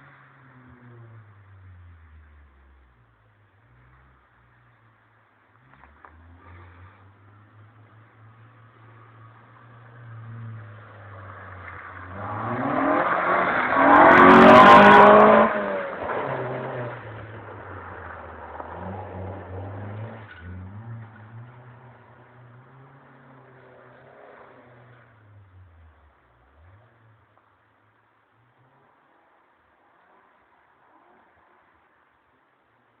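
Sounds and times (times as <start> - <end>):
car engine revving: 5.5 - 27.4.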